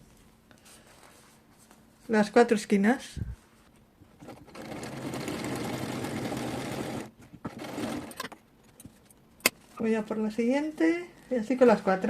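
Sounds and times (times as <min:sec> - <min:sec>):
sewing machine stitching: 0:04.2 - 0:08.4.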